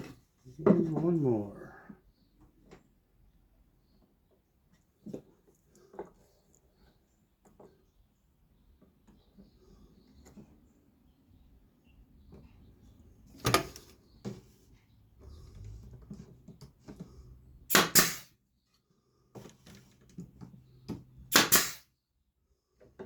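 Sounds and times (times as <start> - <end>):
nail gun firing into wood: 17.7 - 18.3, 21.3 - 21.9.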